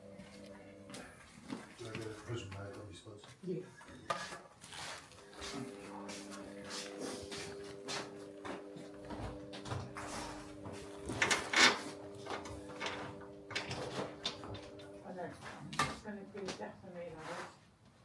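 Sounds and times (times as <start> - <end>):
steady low hum: 5.2 - 15.6.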